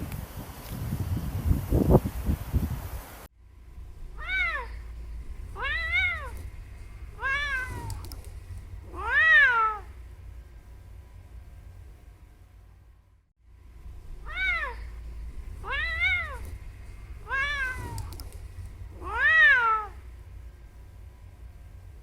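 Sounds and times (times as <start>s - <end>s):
cat meowing: 4.2s - 4.8s, 5.6s - 9.9s, 14.2s - 14.9s, 15.6s - 16.6s, 17.2s - 20.0s.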